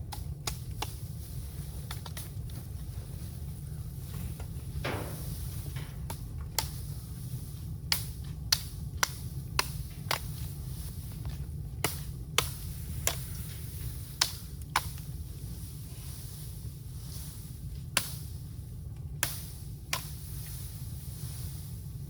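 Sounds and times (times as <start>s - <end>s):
bamboo cracking and popping in fire: 0.0s - 21.8s
low fire rumble: 0.0s - 22.0s.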